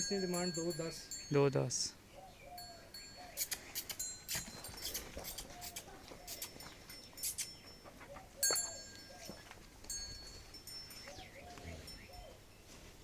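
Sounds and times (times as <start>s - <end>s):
faint animal calls: 2.1s - 9.6s, 11.0s - 12.5s.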